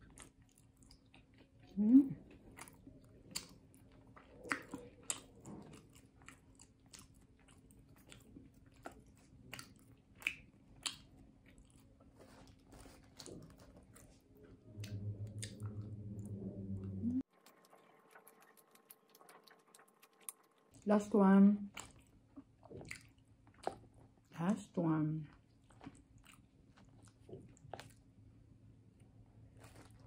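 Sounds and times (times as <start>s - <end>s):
person chewing: 0.0s - 16.5s, 17.2s - 20.8s, 21.7s - 24.2s, 25.3s - 28.1s, 29.4s - 30.0s
low steady hum: 0.0s - 30.0s.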